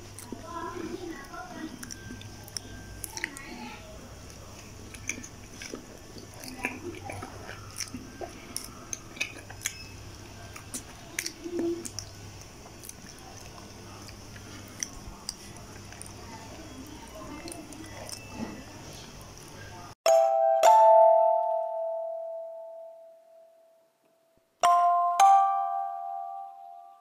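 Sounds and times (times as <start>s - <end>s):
person chewing food: 0.0s - 19.8s.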